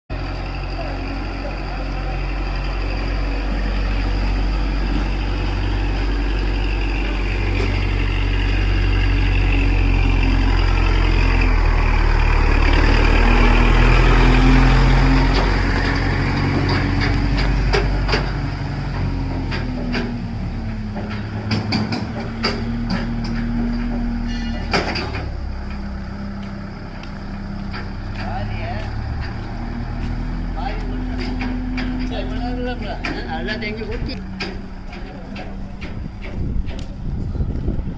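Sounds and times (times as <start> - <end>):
tractor diesel engine running: 0.1 - 37.9
sharp knocks or rattles: 15.1 - 25.9, 31.0 - 37.0.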